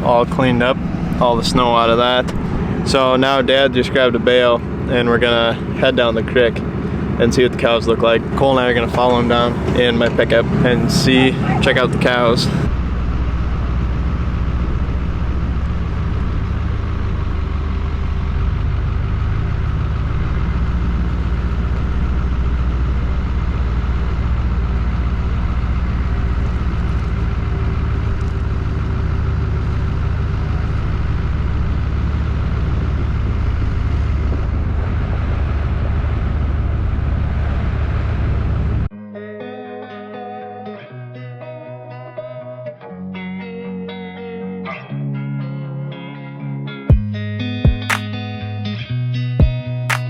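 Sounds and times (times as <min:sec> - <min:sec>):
truck engine and road rumble: 0:00.0 - 0:38.9.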